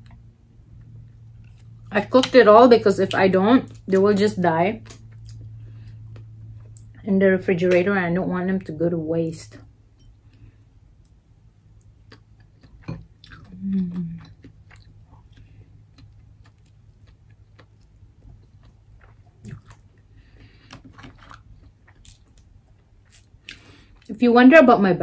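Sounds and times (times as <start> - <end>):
wet chewing sounds: 10.3 - 24.1
person humming: 13.5 - 14.2.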